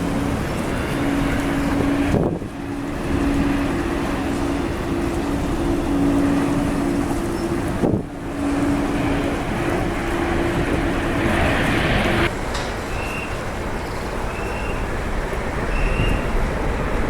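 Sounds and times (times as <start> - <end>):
wind on microphone: 0.0 - 12.3
steady hums: 0.0 - 13.8
jet engines running: 0.0 - 17.0.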